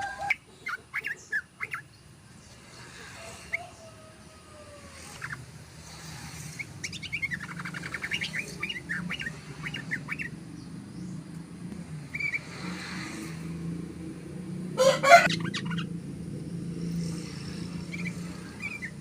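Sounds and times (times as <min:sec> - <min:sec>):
bird singing chattering notes: 0:00.2 - 0:02.2, 0:06.5 - 0:11.3, 0:15.2 - 0:16.0.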